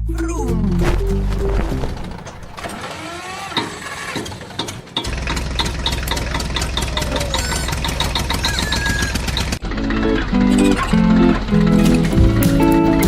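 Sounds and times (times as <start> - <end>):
vehicle engine running: 3.8 - 13.0
short chirping calls: 6.9 - 9.5.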